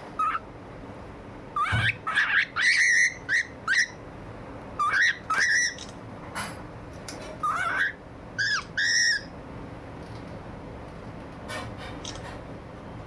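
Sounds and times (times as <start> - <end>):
birds calling: 0.1 - 0.5, 1.5 - 4.1, 4.8 - 6.0, 7.2 - 9.4.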